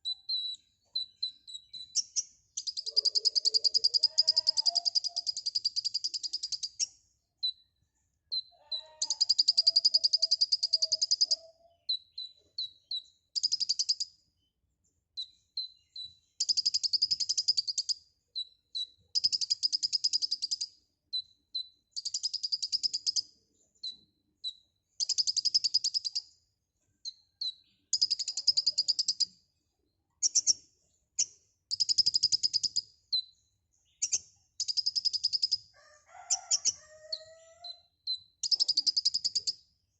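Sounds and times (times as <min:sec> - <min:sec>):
bird buzzy trill: 0:01.1 - 0:06.9
high bird chips: 0:02.8 - 0:05.4.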